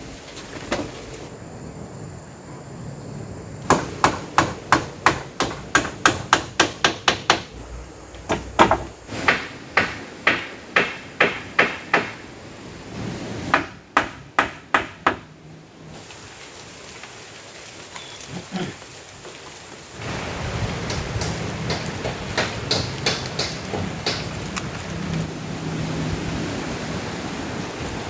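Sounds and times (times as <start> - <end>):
steady rain: 0.0 - 28.0
tool striking wood: 3.7 - 7.5, 8.2 - 12.2, 13.5 - 15.3, 20.8 - 24.4.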